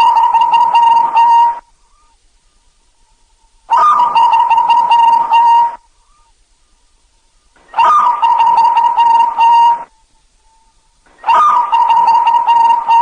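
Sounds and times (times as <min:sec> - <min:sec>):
dove cooing: 0:00.0 - 0:02.2, 0:03.7 - 0:06.3, 0:07.7 - 0:10.0, 0:11.2 - 0:13.0.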